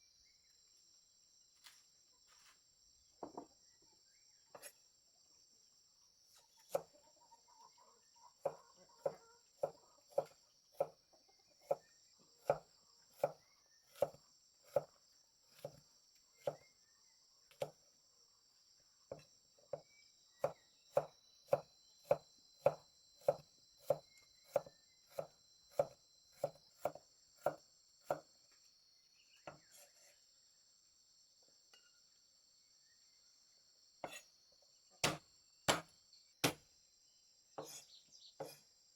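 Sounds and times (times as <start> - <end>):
insects chirring: 0.0 - 38.9
chopping strokes: 35.0 - 36.6.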